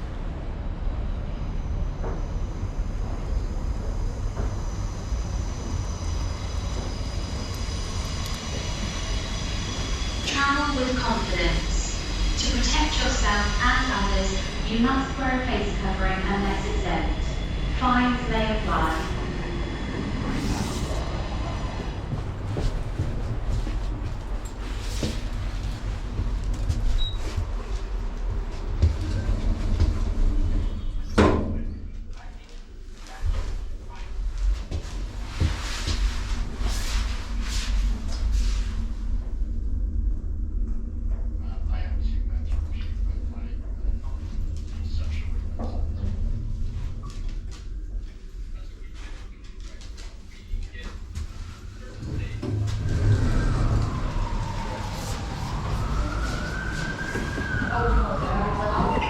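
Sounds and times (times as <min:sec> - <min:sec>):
train rumble inside carriage: 0:00.0 - 0:59.0.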